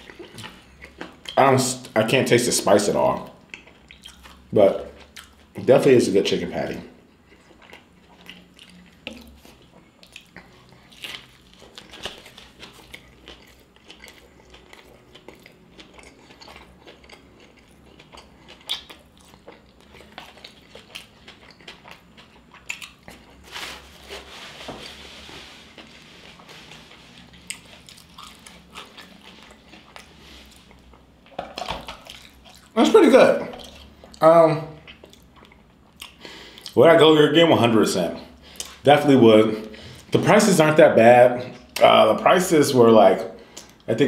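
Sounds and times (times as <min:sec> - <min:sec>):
chewing and biting sandwich: 0:03.4 - 0:05.6, 0:07.0 - 0:32.8
soft rustling: 0:23.4 - 0:30.8.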